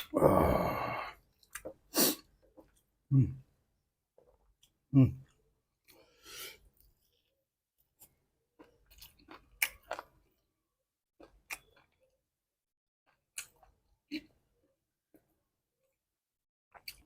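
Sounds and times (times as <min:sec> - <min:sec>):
person chewing food: 0:00.0 - 0:03.0, 0:04.2 - 0:10.5, 0:11.2 - 0:12.3, 0:13.1 - 0:16.0, 0:16.7 - 0:17.0.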